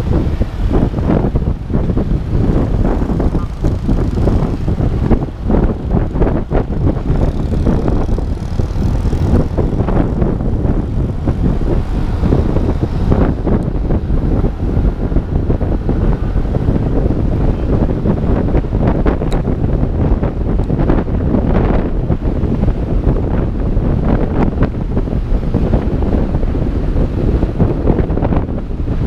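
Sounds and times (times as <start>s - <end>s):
motorbike engine: 0.0s - 23.1s
road noise: 0.0s - 29.0s
wind rumbling on microphone: 0.0s - 29.0s.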